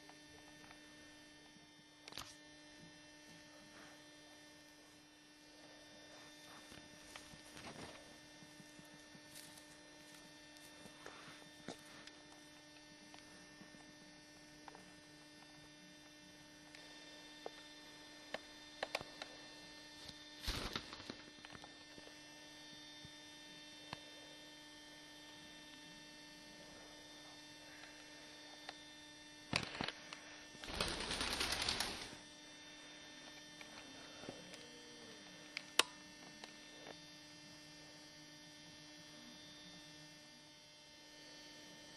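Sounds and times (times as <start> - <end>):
steady electrical hum: 0.0 - 41.9
birds picking at a blanket: 30.6 - 32.2.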